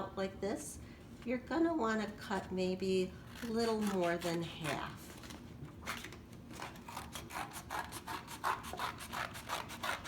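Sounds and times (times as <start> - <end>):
scissors cutting paper plate: 3.3 - 10.0.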